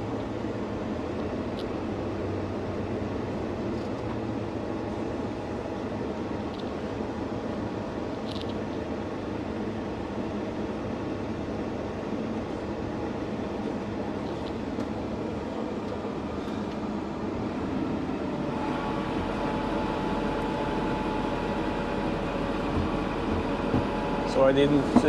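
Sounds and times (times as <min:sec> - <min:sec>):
machinery drone with rattle: 0:00.0 - 0:07.0, 0:08.1 - 0:08.9, 0:13.5 - 0:25.0
faint whining tones: 0:15.8 - 0:25.0.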